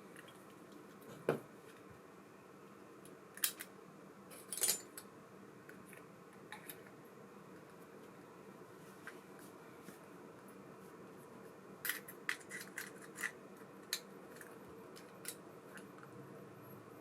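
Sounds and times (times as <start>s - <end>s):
faint room hum: 0.0s - 17.0s
small metal parts clicking: 4.3s - 5.1s, 11.8s - 15.9s.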